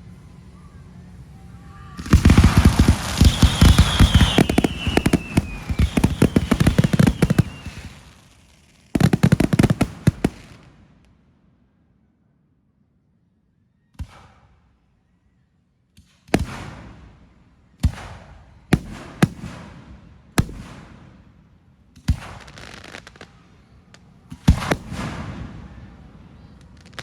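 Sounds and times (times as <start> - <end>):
fireworks bangs: 1.8 - 10.8, 22.0 - 23.4, 24.2 - 27.0.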